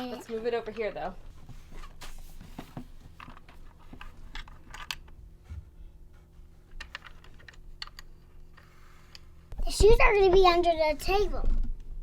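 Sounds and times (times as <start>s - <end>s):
plastic toy pieces clicking and tapping: 6.8s - 8.6s.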